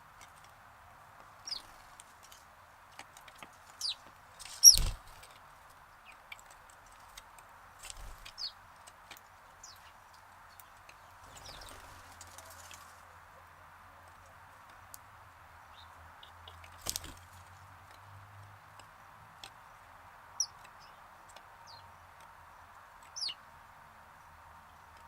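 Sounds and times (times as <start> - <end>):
sparrow chirps: 1.4 - 1.8, 3.7 - 5.0, 8.1 - 8.6, 20.4 - 21.9, 23.1 - 23.4.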